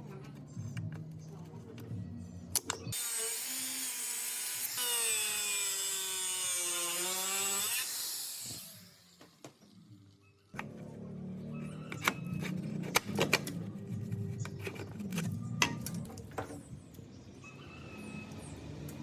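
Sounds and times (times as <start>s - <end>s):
light background music: 0.0s - 3.0s
power tool grinding metal: 2.9s - 9.2s.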